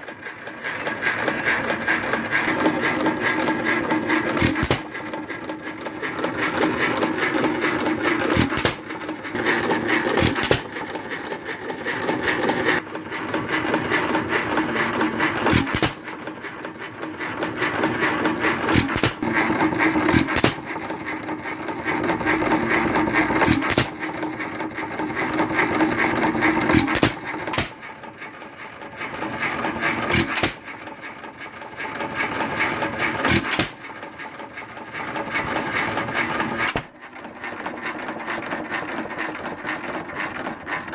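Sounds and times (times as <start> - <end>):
engine mechanical clatter: 0.0 - 40.9
engine firing with sharp bangs: 2.6 - 5.3, 7.3 - 11.4, 13.4 - 16.4, 17.4 - 21.2, 21.9 - 24.6, 25.2 - 28.0, 29.8 - 30.9, 32.1 - 34.1, 36.2 - 37.0.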